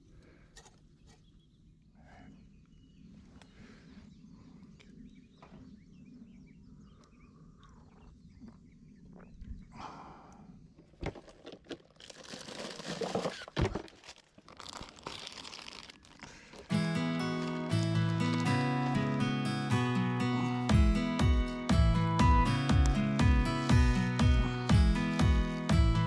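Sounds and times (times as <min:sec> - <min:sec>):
crunching and rustling: 0:11.0 - 0:19.2.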